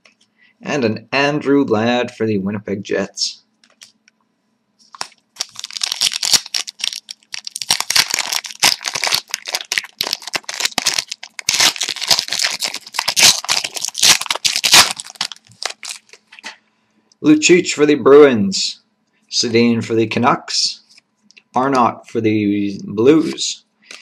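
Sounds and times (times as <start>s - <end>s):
wrappers tearing and crinkling: 4.9s - 16.6s.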